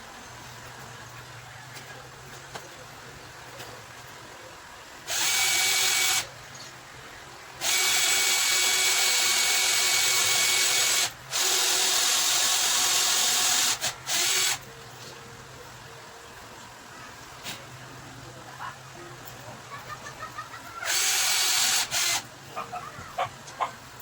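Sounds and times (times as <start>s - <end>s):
power drill whirring: 5.0s - 6.3s, 7.6s - 14.6s, 20.8s - 22.3s.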